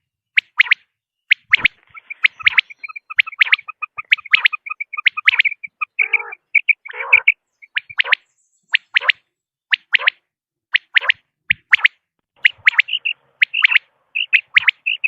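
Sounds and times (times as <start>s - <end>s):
quail calling: 1.3s - 9.2s, 10.8s - 15.0s.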